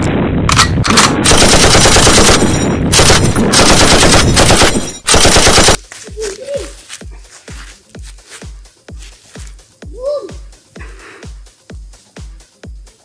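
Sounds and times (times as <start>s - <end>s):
machine gun firing: 0.5s - 5.8s.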